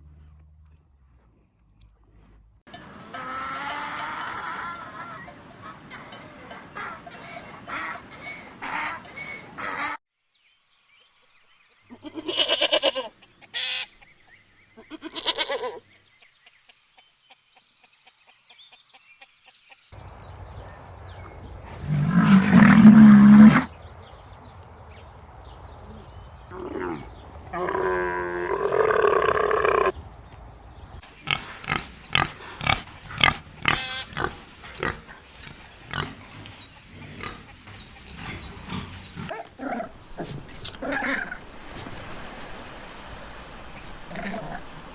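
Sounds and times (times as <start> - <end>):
farm animal calls: 3.0 - 10.0, 11.9 - 14.0, 31.2 - 41.4.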